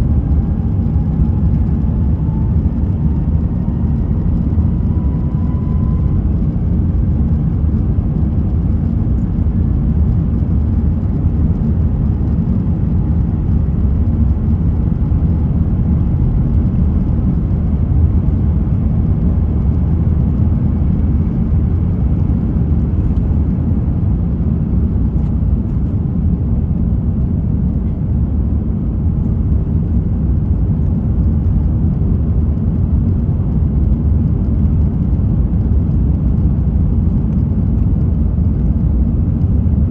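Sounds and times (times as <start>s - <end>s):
airplane cabin low rumble: 0.0s - 39.9s.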